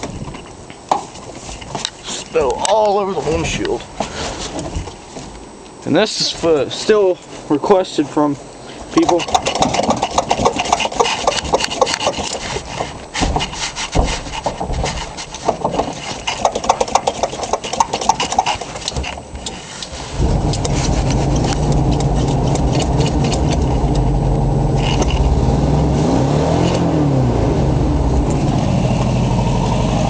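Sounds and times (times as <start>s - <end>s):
engine running steadily: 8.0s - 30.0s
engine cranking on starter: 9.0s - 12.5s, 15.6s - 19.1s, 20.1s - 27.3s.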